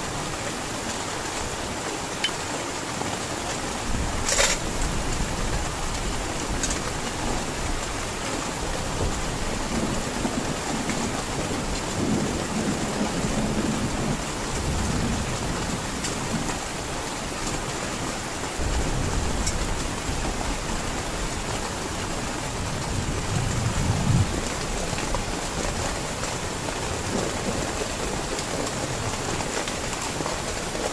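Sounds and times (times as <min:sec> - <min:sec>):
heavy rain: 0:00.0 - 0:30.9
thunder rumbling: 0:18.6 - 0:28.8.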